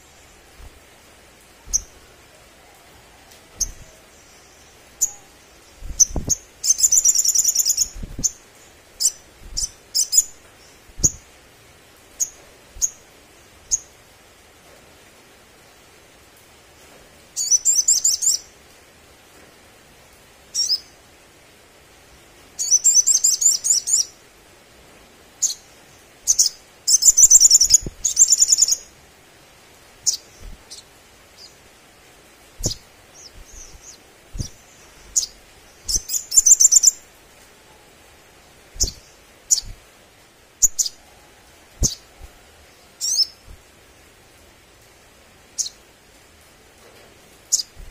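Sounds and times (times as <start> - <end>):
sunbird chirping trills: 0.0 - 11.4, 17.4 - 18.5, 22.6 - 24.2, 25.4 - 29.0, 30.0 - 31.7, 32.6 - 37.2, 38.6 - 39.9, 40.5 - 43.6, 45.5 - 45.8.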